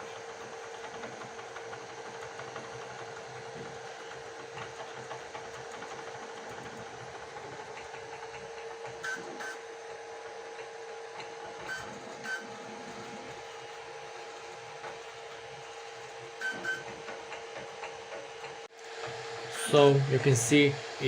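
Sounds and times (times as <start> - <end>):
printer motors and fans whining: 0.0 - 21.0.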